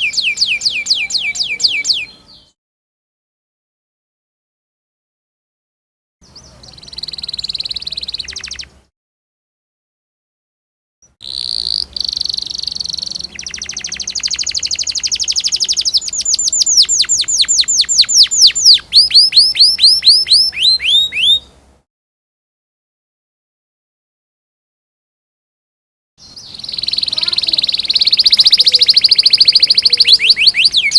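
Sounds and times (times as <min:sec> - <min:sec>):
canary singing: 0:00.0 - 0:02.6, 0:06.2 - 0:08.9, 0:11.0 - 0:21.6, 0:26.2 - 0:30.9.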